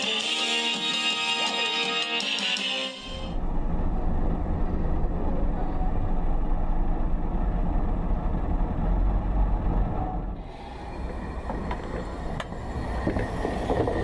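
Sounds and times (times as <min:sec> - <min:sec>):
vehicle rumbling: 0:03.0 - 0:14.0.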